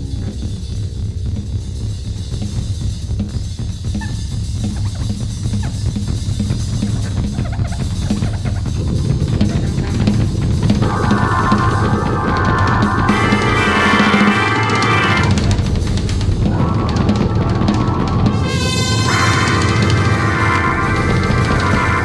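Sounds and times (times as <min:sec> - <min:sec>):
drum kit beat: 0:00.0 - 0:22.0
low bass line: 0:08.6 - 0:22.0
brass ensemble music: 0:08.7 - 0:22.0
sustained pitched tone: 0:08.7 - 0:22.0.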